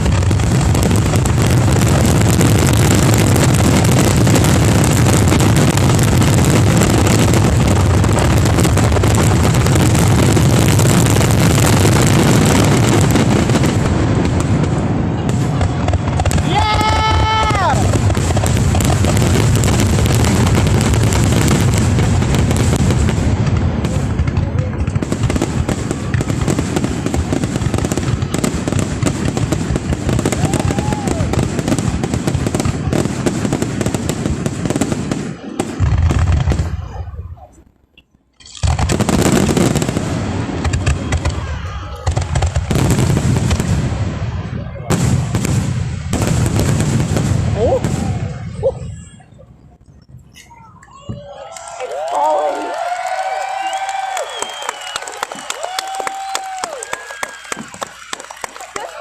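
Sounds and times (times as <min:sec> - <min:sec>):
fireworks bursts and crackles: 0:00.0 - 0:59.0.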